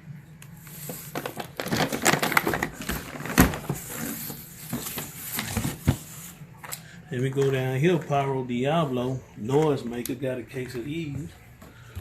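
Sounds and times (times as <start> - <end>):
fireworks boxes rustling and knocking: 0.8 - 6.2.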